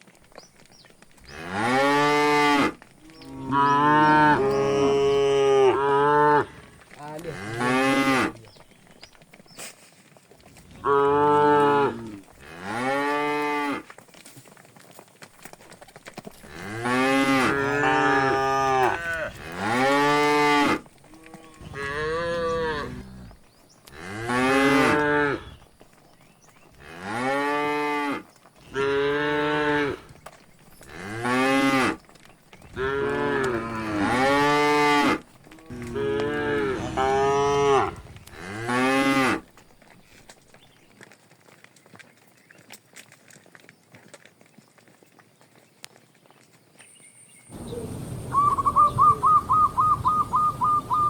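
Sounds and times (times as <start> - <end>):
cattle mooing: 1.3 - 8.4, 10.8 - 13.8, 16.5 - 25.6, 32.8 - 39.4.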